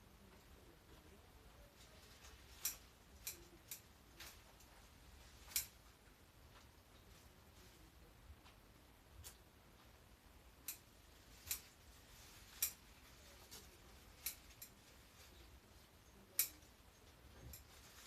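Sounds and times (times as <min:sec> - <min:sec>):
pruning shears snipping stems: 0:02.2 - 0:04.7, 0:05.4 - 0:05.8, 0:11.4 - 0:11.8, 0:16.3 - 0:16.7.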